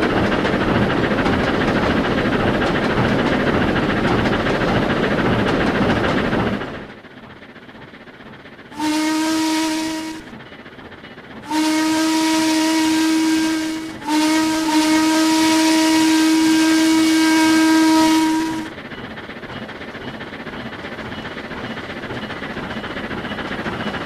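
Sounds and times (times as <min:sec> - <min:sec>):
steam locomotive whistle blasts: 0:08.8 - 0:10.3, 0:11.4 - 0:18.7.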